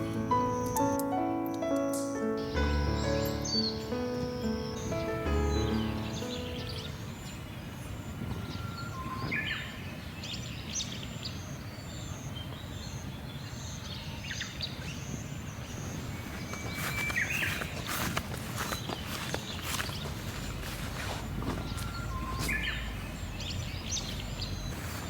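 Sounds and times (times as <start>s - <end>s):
birds chirping and trilling: 0.0s - 25.0s
crunching footsteps: 15.8s - 25.0s.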